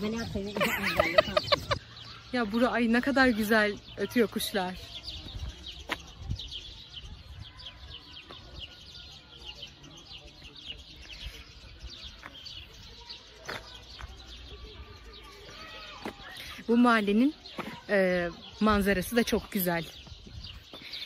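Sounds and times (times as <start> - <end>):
songbirds chirping: 0.0 - 21.0.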